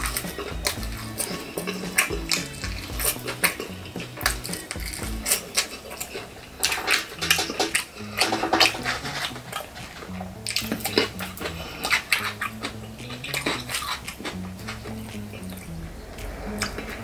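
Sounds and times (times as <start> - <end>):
soft background music: 0.0 - 5.7, 6.7 - 17.0
crunching fried chicken: 0.0 - 17.0
wet chewing: 0.0 - 17.0.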